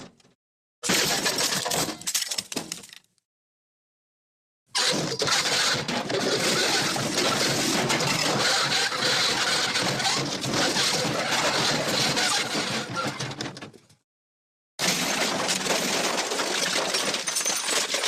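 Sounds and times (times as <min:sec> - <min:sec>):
crash of breaking debris: 0:00.8 - 0:03.1, 0:04.8 - 0:13.0, 0:14.8 - 0:18.0.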